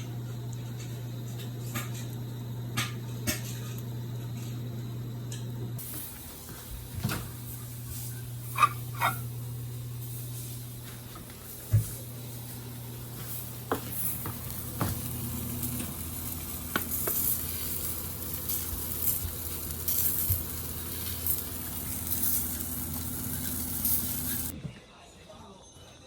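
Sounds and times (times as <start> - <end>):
steady low hum: 0.0 - 24.5
food sizzling in a pan: 5.8 - 24.5.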